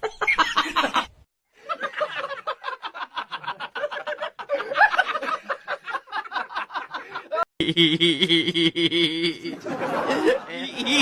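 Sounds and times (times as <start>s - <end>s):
person laughing hard: 3.2s - 11.0s.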